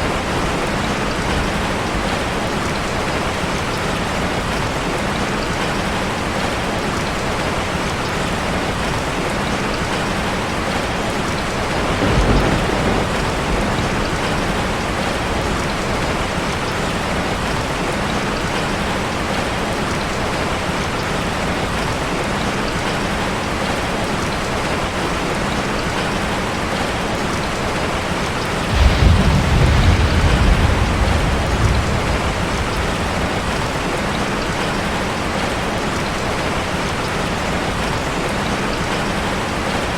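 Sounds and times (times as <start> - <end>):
waterfall rushing: 24.7 - 39.9
low rumble: 28.7 - 34.3.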